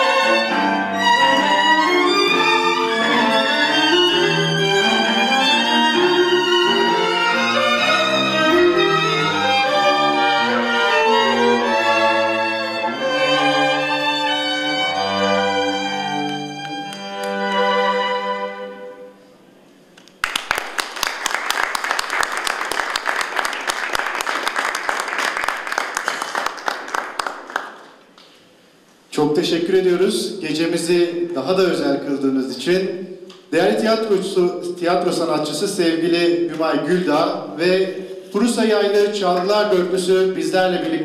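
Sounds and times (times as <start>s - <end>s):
string quartet playing: 0.0s - 19.4s, 29.5s - 41.0s
audience applause: 20.2s - 28.0s.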